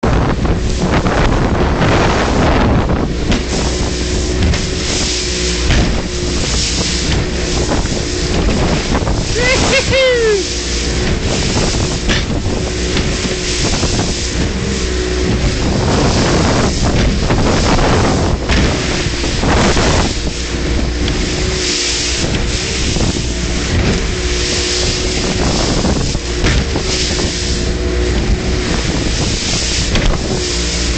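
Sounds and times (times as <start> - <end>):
boat motor running: 0.0 - 30.9
water splashing and rushing: 0.0 - 30.9
wind buffeting microphone: 0.0 - 30.9.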